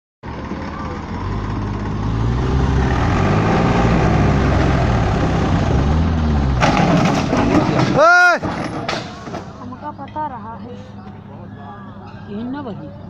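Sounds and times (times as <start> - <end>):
tractor diesel engine running: 0.2 - 10.0.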